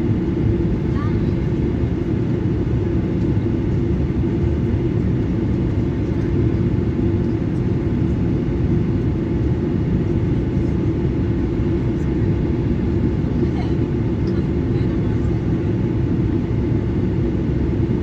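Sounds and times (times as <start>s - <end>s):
airplane cabin engine rumble: 0.0s - 18.0s.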